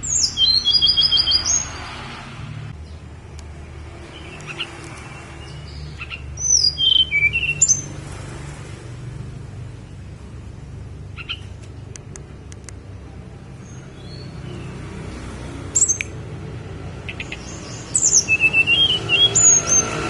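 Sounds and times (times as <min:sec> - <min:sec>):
songbird whistled notes: 0:00.0 - 0:01.8, 0:06.0 - 0:07.9, 0:17.1 - 0:20.0.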